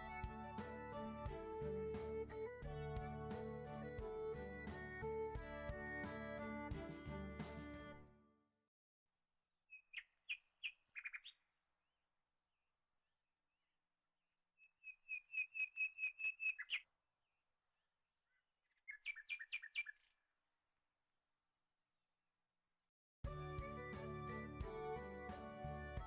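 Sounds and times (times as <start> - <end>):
bird chirping: 9.7 - 11.5, 14.6 - 16.9, 18.3 - 20.2.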